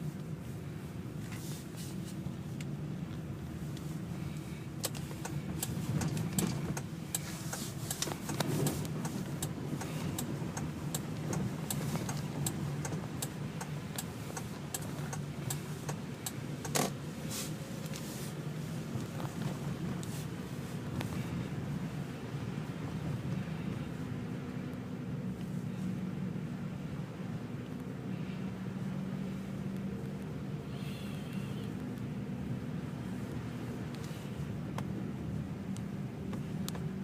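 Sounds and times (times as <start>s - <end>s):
vehicle engine humming: 0.0s - 37.0s
sharp ticks and clicks: 4.8s - 16.9s.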